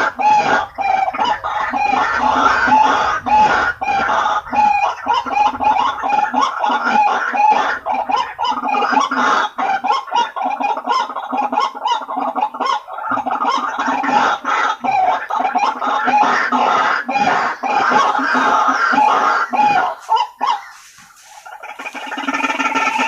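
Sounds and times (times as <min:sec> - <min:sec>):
bird honking calls: 0:12.7 - 0:23.0.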